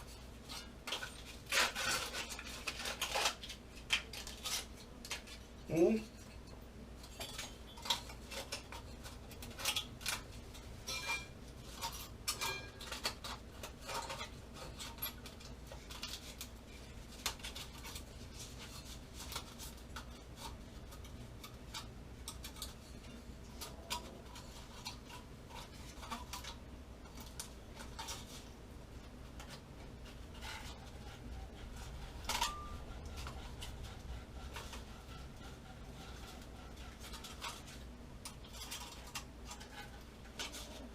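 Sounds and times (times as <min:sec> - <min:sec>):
metal tools clinking: 0:10.8 - 0:13.1.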